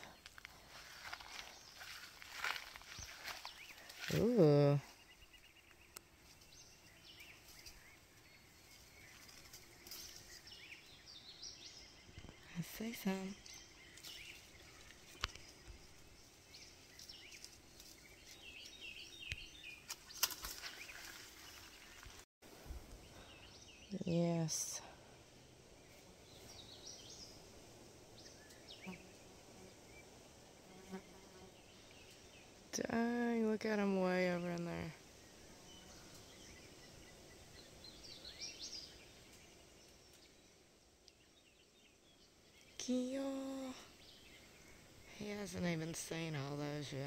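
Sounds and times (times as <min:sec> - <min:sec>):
faint outdoor hush: 0:00.0 - 0:19.7, 0:22.5 - 0:32.8.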